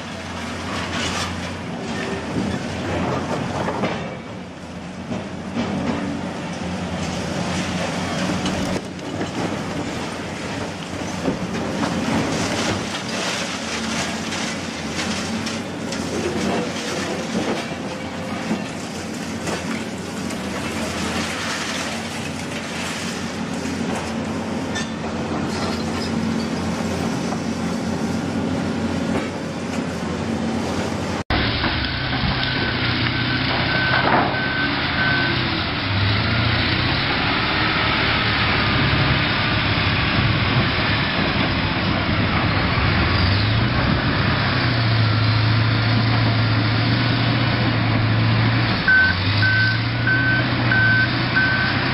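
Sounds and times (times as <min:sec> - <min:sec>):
heavy machinery droning: 0:00.0 - 0:51.9
machinery rattling and clatter: 0:00.1 - 0:34.4.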